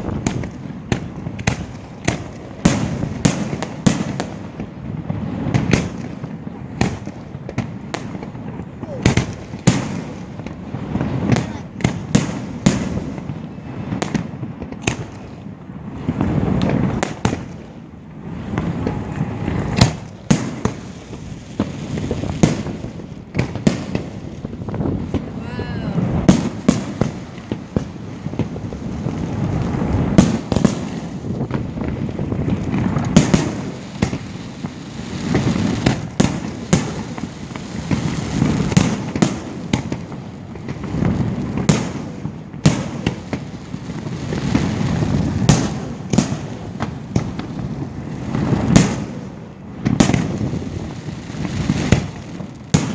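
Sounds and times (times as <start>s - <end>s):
fireworks bursting: 0.0s - 52.9s
low rumble: 17.9s - 20.2s.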